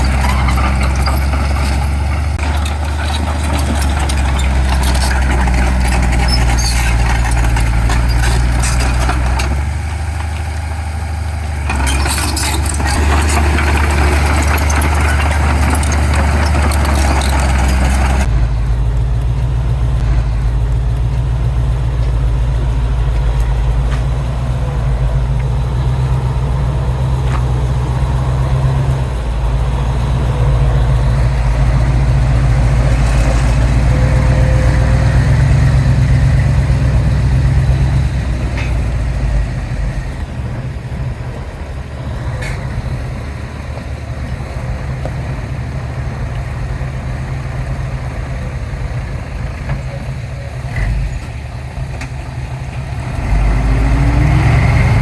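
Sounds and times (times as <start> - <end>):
rough clattering noise: 0.0 - 24.8, 28.5 - 40.3
diesel machinery engine running: 0.0 - 55.0.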